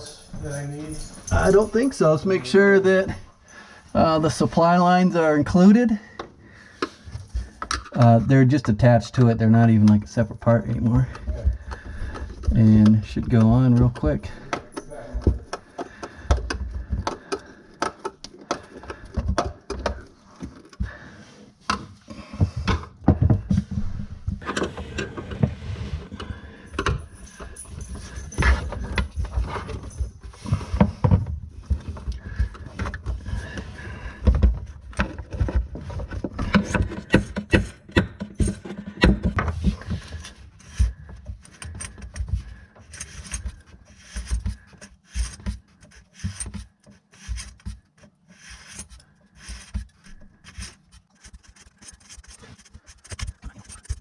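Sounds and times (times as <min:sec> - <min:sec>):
tools and metal parts clinking: 0:00.0 - 0:02.6, 0:24.4 - 0:31.2, 0:31.8 - 0:46.6.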